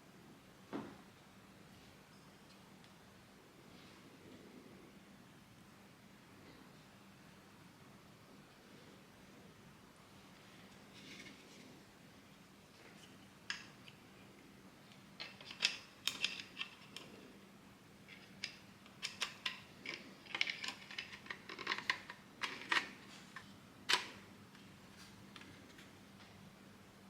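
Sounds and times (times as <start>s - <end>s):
plastic parts clattering: 15.2s - 17.2s, 18.2s - 24.2s
plastic parts clicking: 15.2s - 17.2s, 18.1s - 24.2s.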